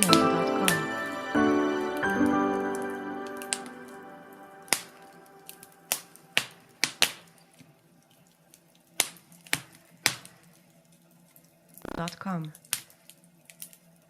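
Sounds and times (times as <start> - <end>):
music: 0.0 - 6.4
sharp pops: 11.8 - 12.2.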